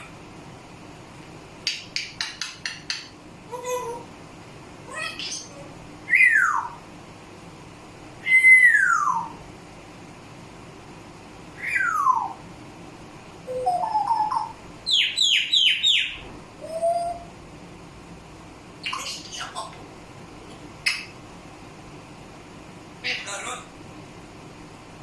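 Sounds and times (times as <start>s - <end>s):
parrot whistling: 6.1s - 6.8s, 8.2s - 9.4s, 11.6s - 12.4s, 13.5s - 17.3s.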